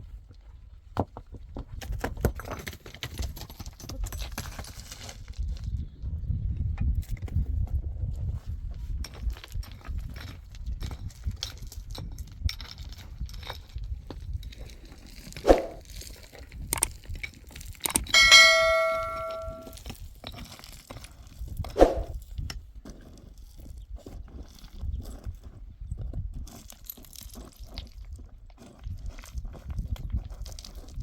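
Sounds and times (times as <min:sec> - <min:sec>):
knocks and clicks: 0:18.2 - 0:19.7
metal object ringing when struck: 0:18.2 - 0:19.8.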